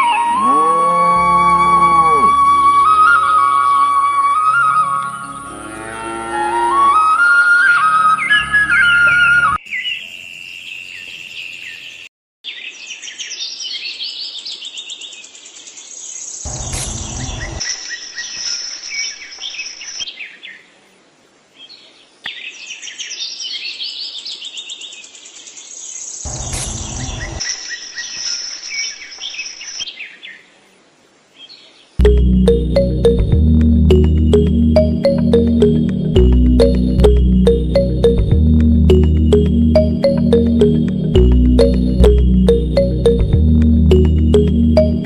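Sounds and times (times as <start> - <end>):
birds chirping: 31.4 - 45.0.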